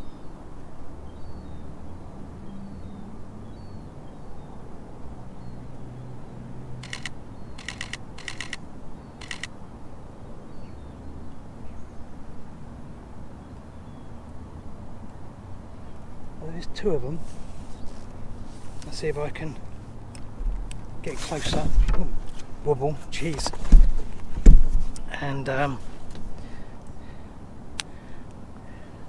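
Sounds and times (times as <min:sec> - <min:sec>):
camera shutter clicking: 0:06.8 - 0:08.6, 0:09.2 - 0:09.5
low background rumble: 0:15.8 - 0:27.4.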